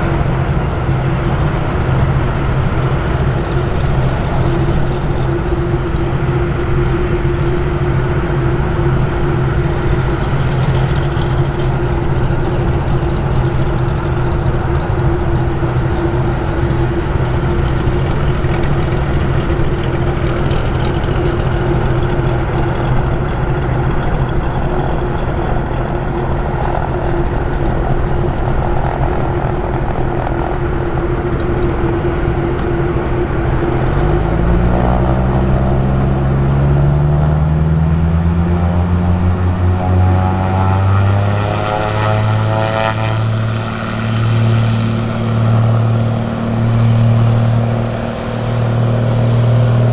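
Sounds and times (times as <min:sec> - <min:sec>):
aircraft engines running: 0:00.0 - 0:49.9.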